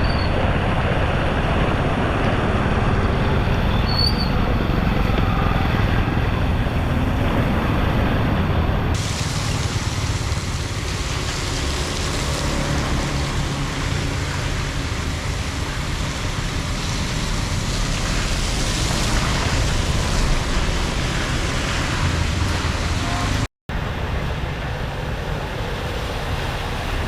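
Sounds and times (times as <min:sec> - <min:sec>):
floodwater pouring into drain: 0:08.9 - 0:22.9.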